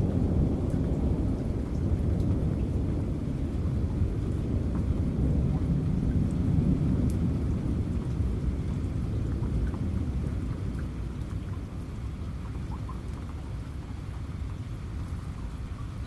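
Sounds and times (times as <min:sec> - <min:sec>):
rolling thunder rumble: 0:00.0 - 0:11.8
steady rain: 0:00.0 - 0:16.0
water drip ticks: 0:00.6 - 0:16.0.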